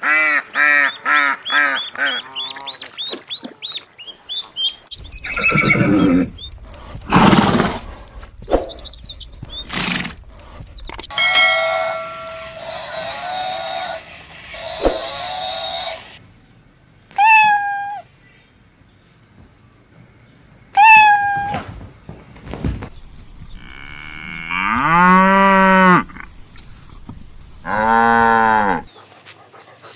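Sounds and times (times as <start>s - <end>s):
held animal call: 0.0s - 16.2s, 20.7s - 21.6s, 27.6s - 28.9s
horse snorting and whinnying: 5.2s - 6.4s, 7.0s - 8.1s.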